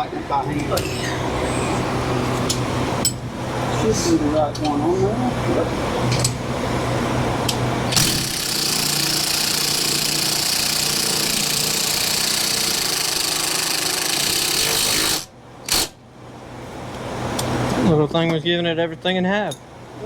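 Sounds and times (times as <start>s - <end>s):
impact wrench hammering: 7.9s - 16.0s.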